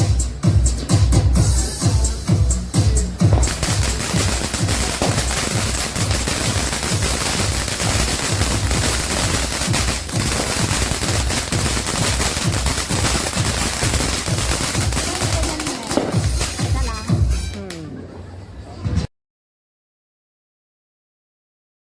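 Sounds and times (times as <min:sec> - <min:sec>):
firework crackling pops: 0:03.2 - 0:17.8.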